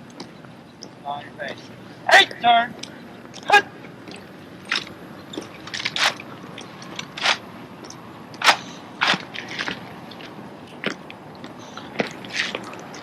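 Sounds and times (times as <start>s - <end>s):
rifles slapping and knocking: 4.7s - 6.2s, 6.8s - 7.4s, 8.4s - 9.8s.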